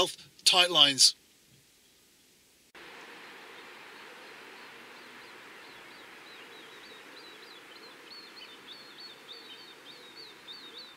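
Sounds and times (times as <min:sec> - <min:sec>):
faint outdoor hiss: 0:00.0 - 0:10.9
small bird chirping: 0:03.2 - 0:10.9.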